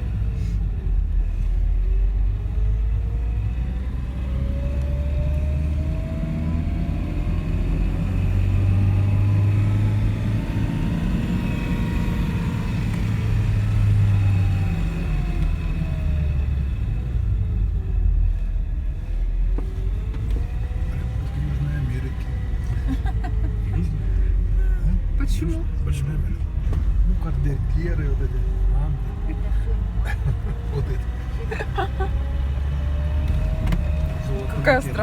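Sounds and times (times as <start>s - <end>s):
car engine revving: 0.0s - 35.0s
road rumble: 0.0s - 35.0s.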